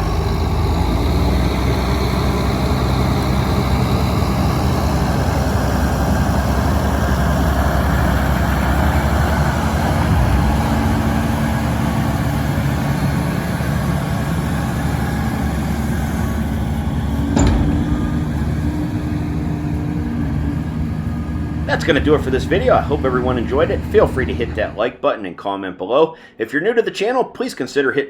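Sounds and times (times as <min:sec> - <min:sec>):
heavy diesel machinery running: 0:00.0 - 0:24.8
brief knock: 0:17.3 - 0:20.3.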